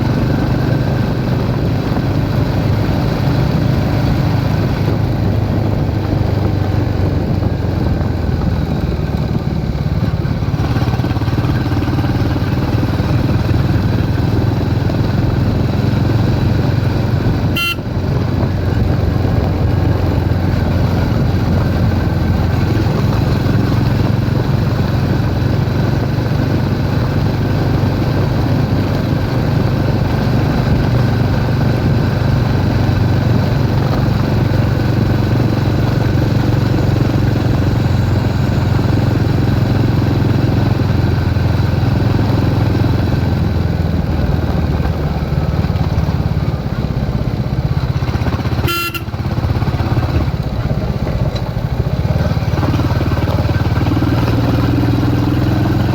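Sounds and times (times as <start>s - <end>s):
motorcycle engine running: 0.0s - 55.9s
short high beep: 17.5s - 17.9s.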